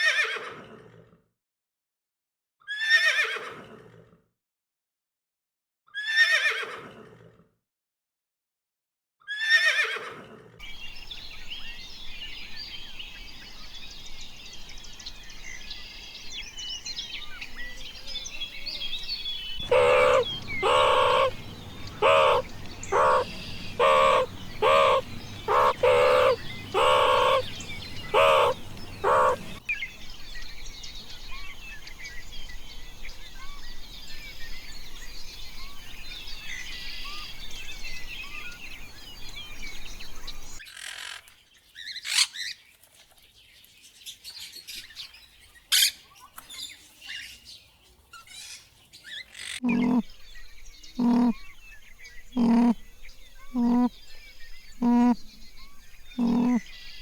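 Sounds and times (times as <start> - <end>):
small birds chirping: 10.6 - 40.6, 41.3 - 57.0
animal calling loudly: 19.6 - 29.6, 49.5 - 50.1, 51.0 - 51.4, 52.4 - 52.8, 53.5 - 53.9, 54.8 - 55.2, 56.2 - 56.7.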